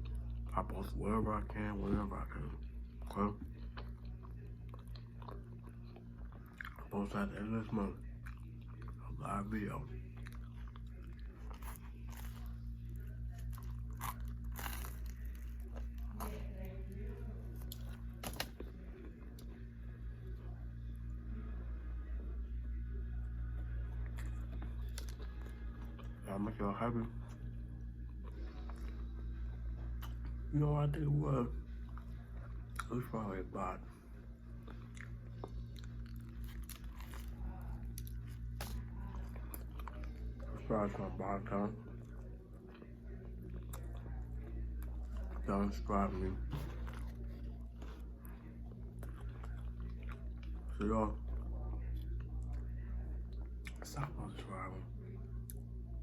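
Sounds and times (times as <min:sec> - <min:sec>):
steady low hum: 0:00.0 - 0:56.0
person chewing crunchy food: 0:02.4 - 0:19.8, 0:23.6 - 0:26.3, 0:34.4 - 0:40.5, 0:41.5 - 0:54.3.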